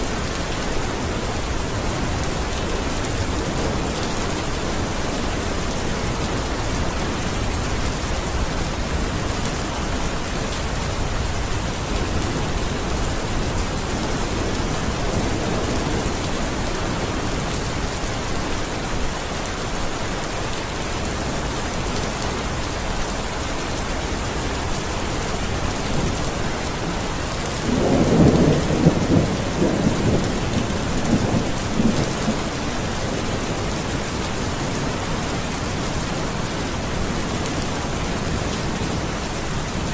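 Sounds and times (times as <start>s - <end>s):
steady rain: 0.0s - 39.9s
thunder rumbling: 25.8s - 33.7s.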